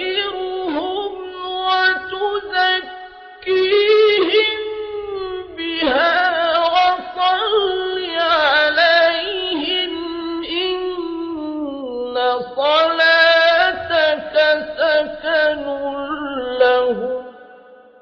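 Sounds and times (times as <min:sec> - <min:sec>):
melodic recitation by one voice: 0:00.0 - 0:18.0.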